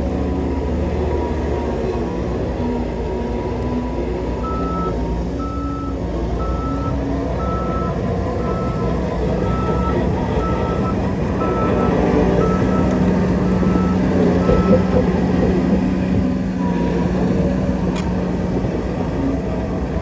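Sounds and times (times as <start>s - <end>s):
diesel earthmoving machine running: 0.0s - 20.0s
reversing alarm beeping: 4.4s - 16.7s.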